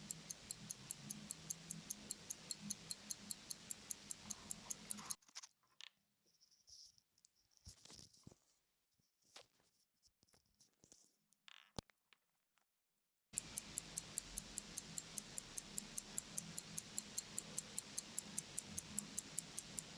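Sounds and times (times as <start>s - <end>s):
pocket watch ticking: 0.0s - 5.2s, 13.4s - 19.9s
faint clicks and scrapes: 0.1s - 12.2s.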